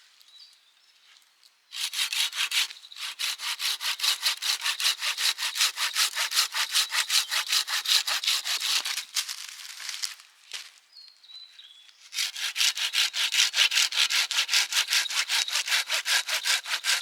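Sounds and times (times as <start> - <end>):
hand saw cutting firewood: 1.8 - 9.2, 12.1 - 17.0.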